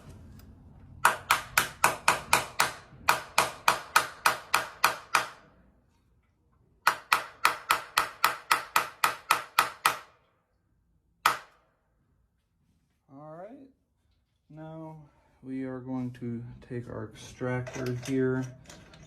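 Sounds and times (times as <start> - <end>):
hammer tapping on metal: 1.0 - 5.4, 6.8 - 10.1.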